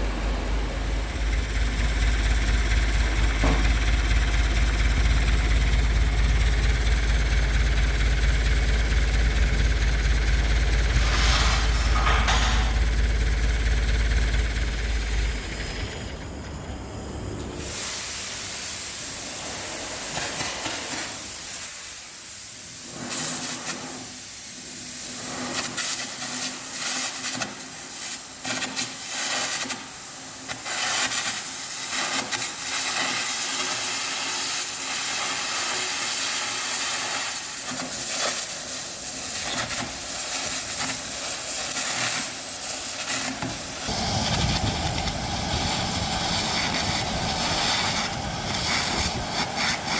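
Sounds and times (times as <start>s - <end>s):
compressed air hiss: 10.6s - 12.9s, 14.9s - 27.9s, 33.8s - 49.9s
crackling electric arc: 13.6s - 49.9s.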